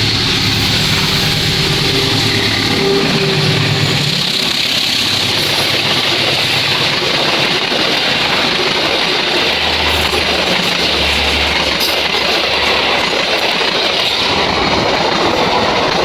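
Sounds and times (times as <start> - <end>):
train carriages rumbling over rails: 0.0 - 16.0.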